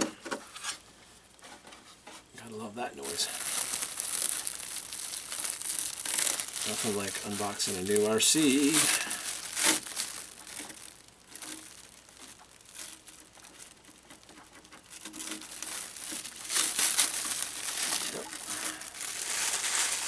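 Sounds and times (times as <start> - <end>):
cellophane wrap crinkling: 2.4 - 20.0.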